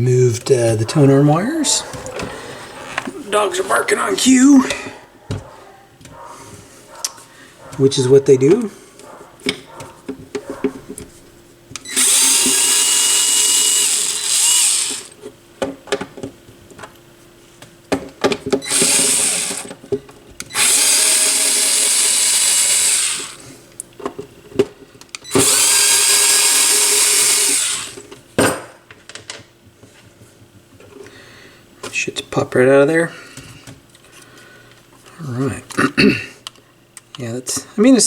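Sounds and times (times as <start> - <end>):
drill driver spinning out screws: 11.8 - 15.2, 18.6 - 19.8, 20.5 - 23.4, 25.3 - 28.1.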